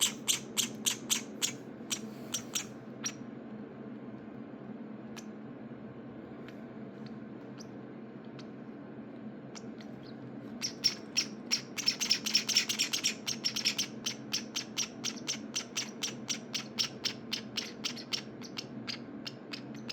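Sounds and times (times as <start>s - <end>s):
nestlings chirping: 0.0s - 3.2s, 7.0s - 8.6s, 9.5s - 19.9s.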